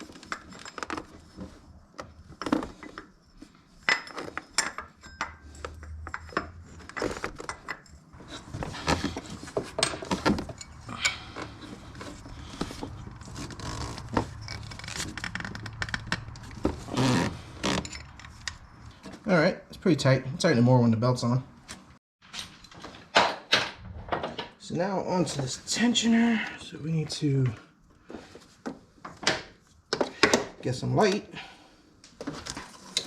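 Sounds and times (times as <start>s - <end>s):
hand tools clinking on metal: 3.8s - 8.1s.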